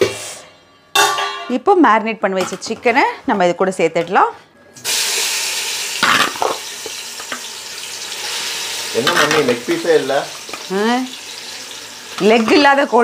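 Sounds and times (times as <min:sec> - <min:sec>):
chicken sizzling in oil: 0:04.8 - 0:13.0
voice: 0:09.0 - 0:11.1, 0:12.2 - 0:13.0.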